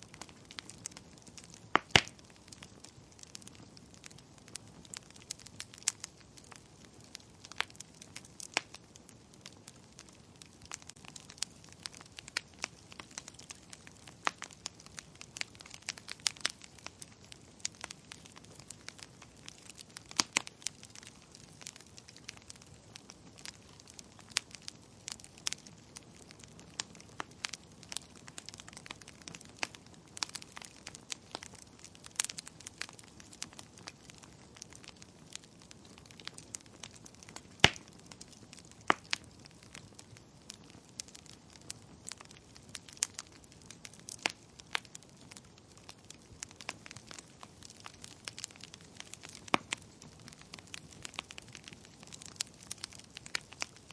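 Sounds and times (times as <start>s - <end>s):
faint steady hiss: 0.0s - 53.9s
wood fire crackling: 0.0s - 53.9s.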